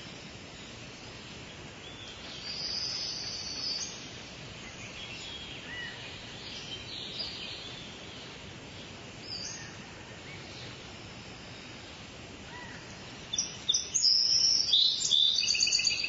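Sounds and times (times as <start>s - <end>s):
outdoor ambience: 0.0s - 16.0s
bird trill: 12.6s - 16.0s.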